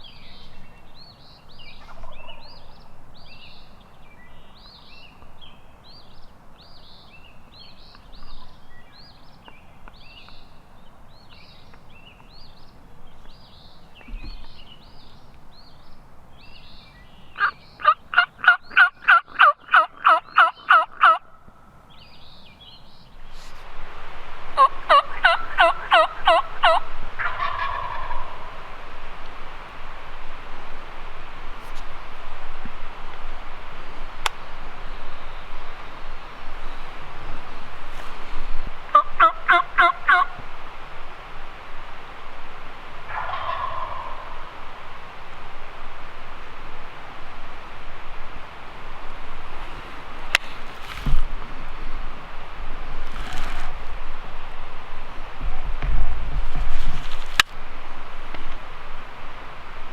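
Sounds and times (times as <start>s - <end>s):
songbirds chirping: 0.0s - 55.5s
wild turkey yelping: 1.8s - 2.7s, 17.4s - 21.4s, 24.6s - 28.7s, 38.9s - 40.4s, 43.0s - 44.5s.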